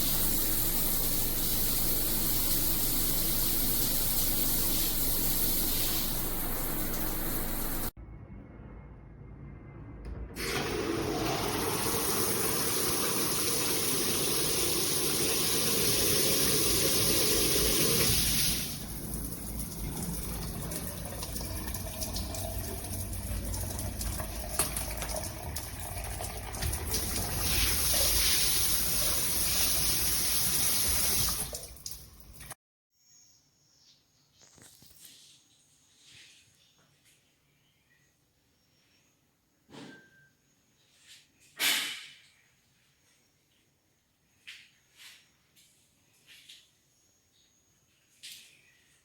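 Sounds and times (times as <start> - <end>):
water spraying from shower head: 0.0 - 7.9, 11.4 - 21.4, 26.5 - 32.6.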